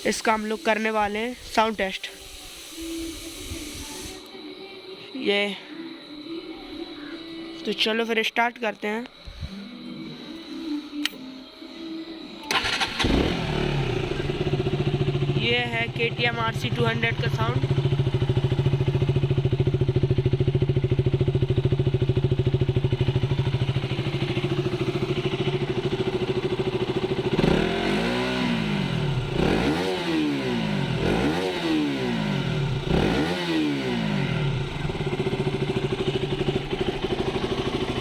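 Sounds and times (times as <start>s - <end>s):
motorcycle engine idling and revving: 12.5s - 38.0s.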